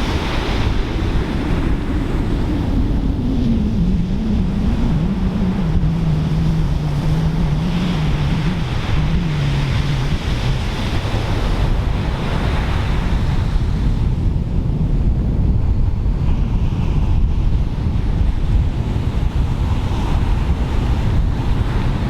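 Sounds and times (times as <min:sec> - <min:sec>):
ocean surf breaking: 0:00.0 - 0:14.0
wind buffeting microphone: 0:00.0 - 0:22.0
low drone falling in pitch: 0:02.0 - 0:11.0.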